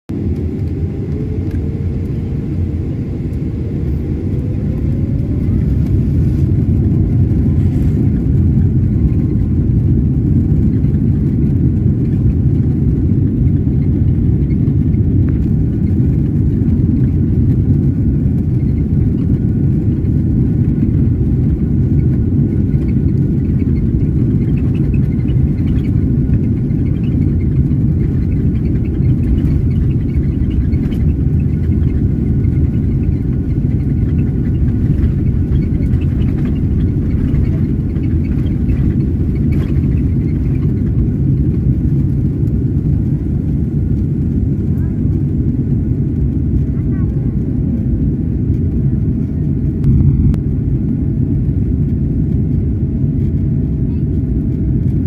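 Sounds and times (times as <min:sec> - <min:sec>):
jet engine whine: 0:00.1 - 0:55.0
jet engines rumbling: 0:00.1 - 0:55.0.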